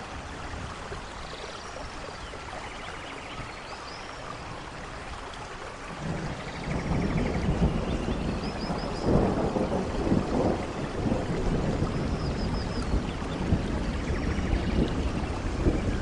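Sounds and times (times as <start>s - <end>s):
heavy rain: 0.0s - 16.0s
rolling thunder rumble: 5.9s - 16.0s.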